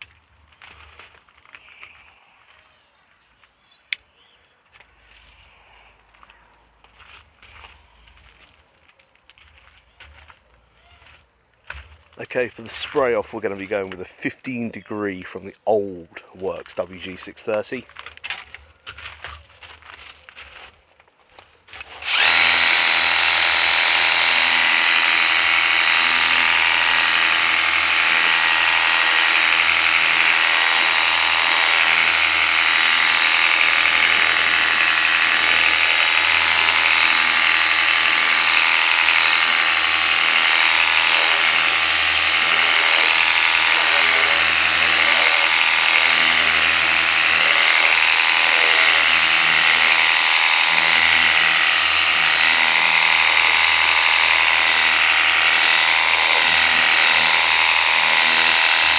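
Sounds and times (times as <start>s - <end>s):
pressure washer motor humming: 12.2s - 17.8s, 21.8s - 58.9s.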